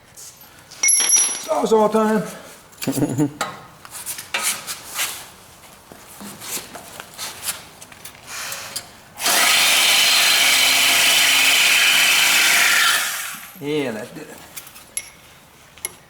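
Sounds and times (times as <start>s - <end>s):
metal clinks and knocks: 0.8s - 1.6s, 14.6s - 16.0s.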